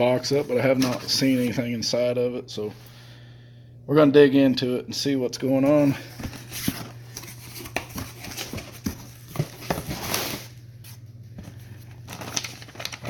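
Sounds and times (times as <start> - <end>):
steady low hum: 0.0 - 13.0
rustling in cardboard box: 6.1 - 10.6, 12.1 - 13.0.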